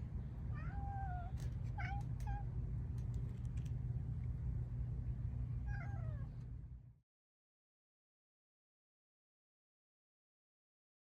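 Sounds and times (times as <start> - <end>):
cat meowing: 0.6 - 2.5, 5.7 - 6.3.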